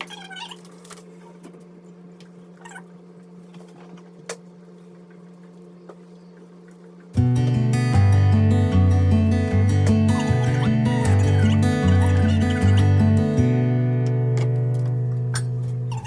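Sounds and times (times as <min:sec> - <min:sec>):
steady low hum: 0:00.1 - 0:16.0
acoustic guitar music: 0:07.2 - 0:16.0.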